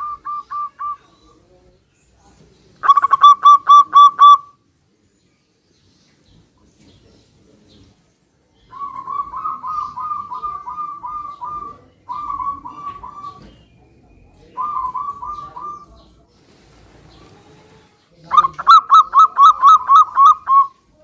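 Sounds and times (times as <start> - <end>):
dove cooing staccato notes: 2.8 - 4.5, 8.7 - 13.6, 14.6 - 15.9, 18.3 - 20.8.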